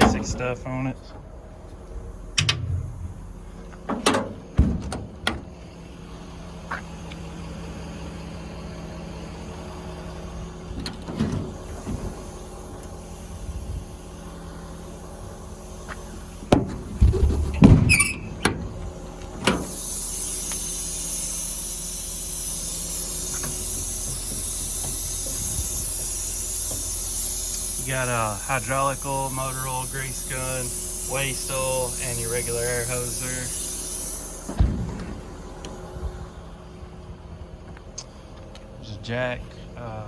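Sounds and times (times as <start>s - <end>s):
metal door clunks: 0.0s - 0.4s, 2.4s - 5.6s, 10.8s - 11.6s, 16.5s - 18.8s, 19.4s - 19.7s, 34.5s - 35.3s
diesel engine running: 0.0s - 40.0s
metal door squeal: 17.5s - 18.6s
steady hiss: 19.6s - 37.0s.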